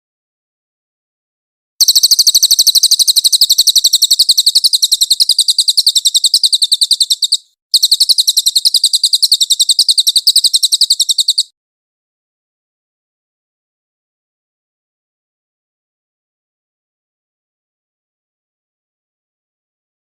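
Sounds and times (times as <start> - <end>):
songbird singing rapid chirps: 1.8 - 11.5.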